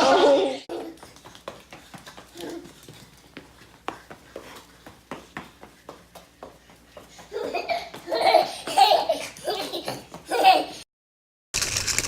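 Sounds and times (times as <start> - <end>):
young child laughing: 0.0 - 1.0, 7.2 - 10.8.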